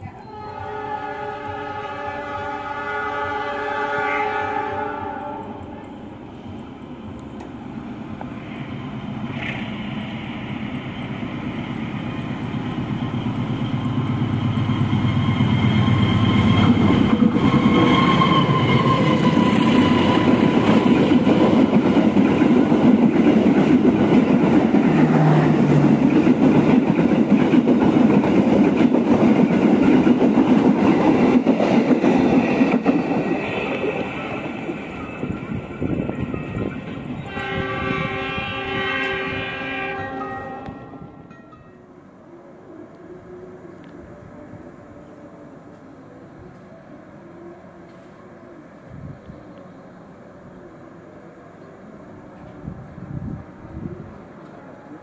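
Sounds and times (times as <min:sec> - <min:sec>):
train wheels clattering on rails: 0:13.7 - 0:37.4.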